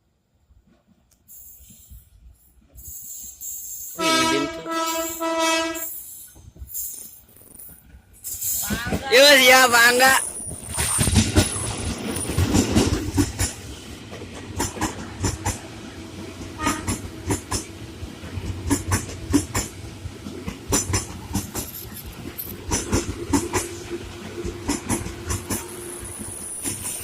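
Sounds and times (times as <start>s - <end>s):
train rumble: 0.5s - 27.0s
train wheels clacking over rail joints: 8.2s - 27.0s.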